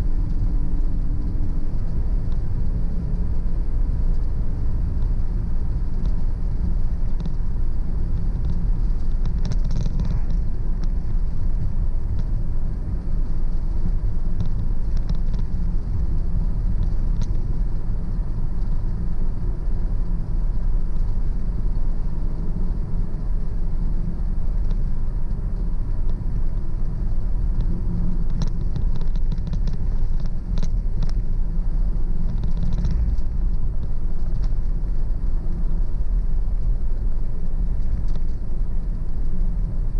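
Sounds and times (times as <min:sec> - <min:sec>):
car driving rumble: 0:00.0 - 0:39.9
faint ticks: 0:04.0 - 0:05.2, 0:05.9 - 0:12.4, 0:13.2 - 0:19.0, 0:24.4 - 0:39.8.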